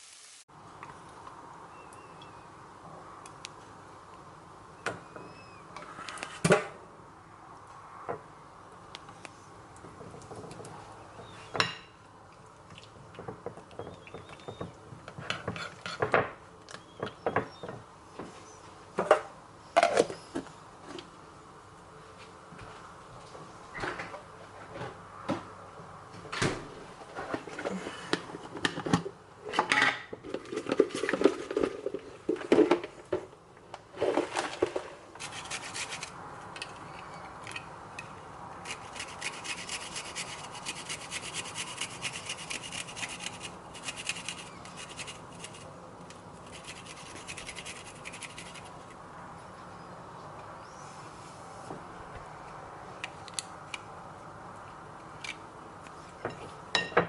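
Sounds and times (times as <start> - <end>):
steady rasping with fine ticking: 38.0 - 49.0.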